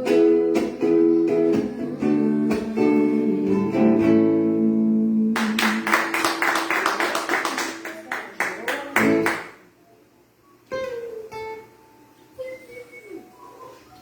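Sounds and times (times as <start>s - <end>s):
acoustic guitar strumming: 0.0s - 5.9s, 10.7s - 12.2s.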